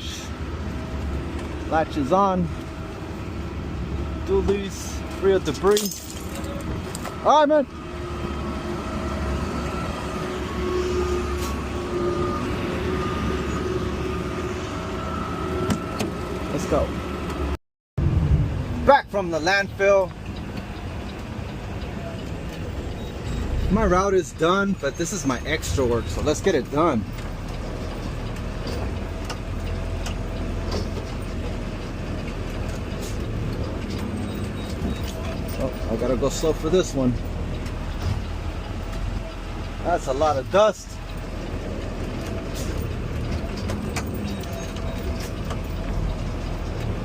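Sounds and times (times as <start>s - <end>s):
garbage truck humming: 0.0s - 17.6s, 20.0s - 47.0s
road and drivetrain rumble: 0.0s - 47.0s
rattles: 4.5s - 7.1s.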